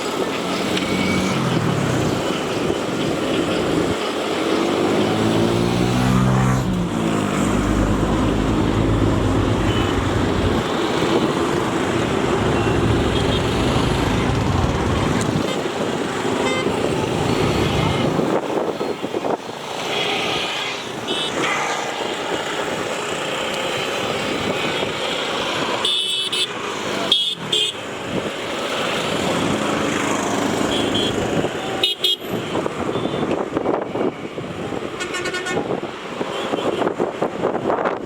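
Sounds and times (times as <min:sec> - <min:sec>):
high horn toots: 0:35.0 - 0:35.7.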